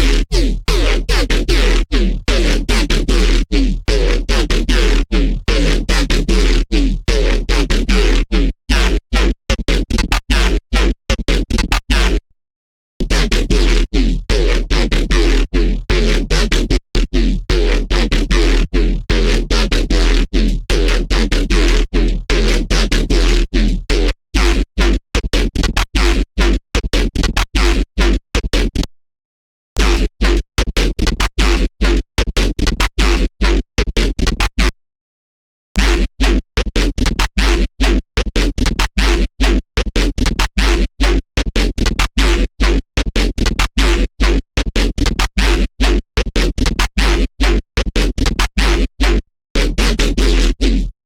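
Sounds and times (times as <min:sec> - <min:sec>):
choppy bass synth notes: 0:00.0 - 0:08.2, 0:13.1 - 0:23.6.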